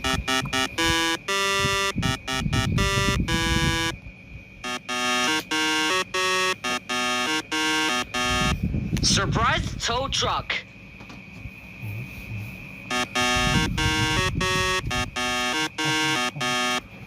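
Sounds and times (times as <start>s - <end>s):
buzzy electronic melody: 0.0s - 4.0s, 4.6s - 8.6s, 12.9s - 16.8s.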